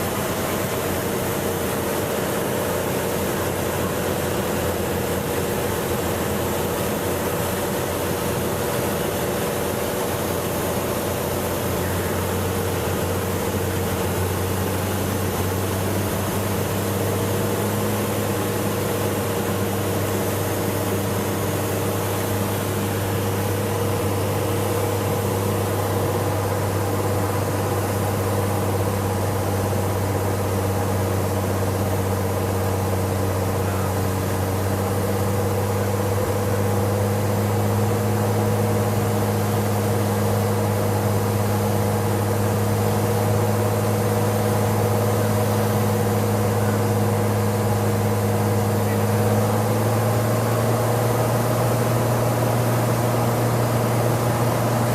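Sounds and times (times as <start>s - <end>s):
propeller plane engine droning: 0.0s - 54.9s.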